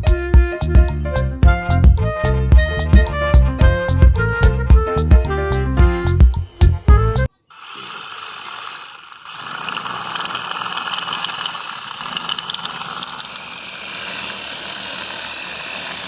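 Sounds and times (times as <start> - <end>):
toy vehicle motor whirring: 7.5 - 16.0.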